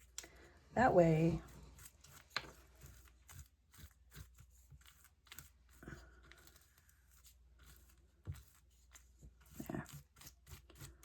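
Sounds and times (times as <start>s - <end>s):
paper rustling and tapping: 2.1s - 3.2s.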